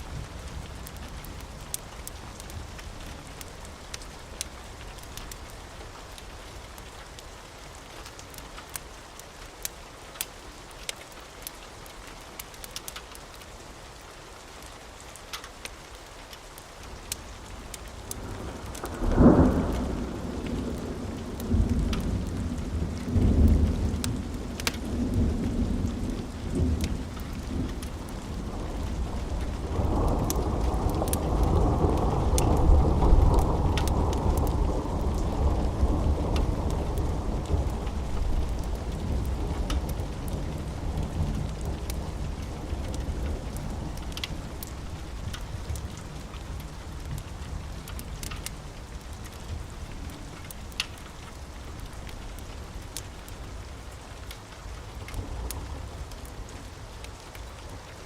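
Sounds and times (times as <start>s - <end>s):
steady rain: 0.0s - 58.0s
wood fire crackling: 0.0s - 58.0s
thunder rumbling: 18.1s - 53.7s.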